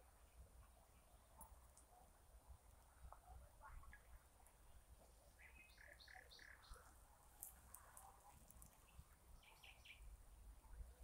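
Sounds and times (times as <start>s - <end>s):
faint bird calls: 5.3s - 7.0s.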